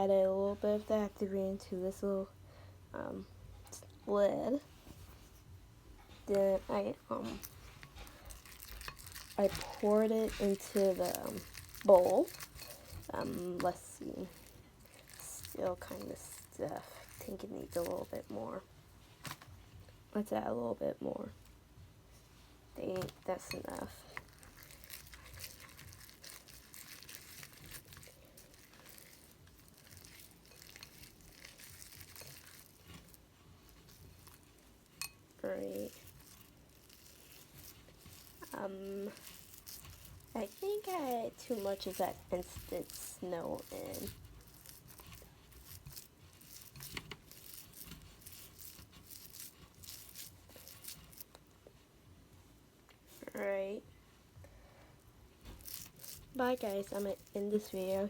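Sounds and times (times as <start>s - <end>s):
slime crinkling and crackling: 6.1s - 19.6s, 22.8s - 51.5s, 55.4s - 58.0s.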